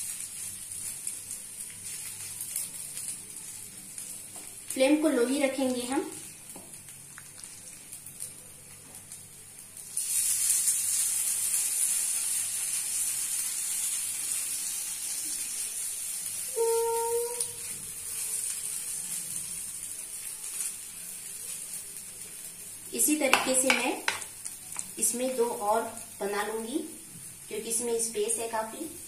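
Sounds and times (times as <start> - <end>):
hot oil sizzling: 0.0 - 29.0
brief pitched tone: 16.5 - 17.6.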